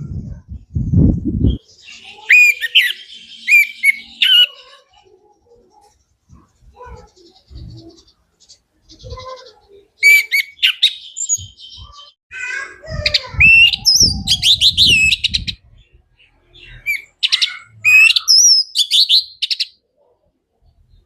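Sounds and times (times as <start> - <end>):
thrush singing whistles and chirps: 1.4 - 4.6, 10.0 - 12.1, 13.4 - 15.6, 16.6 - 19.8.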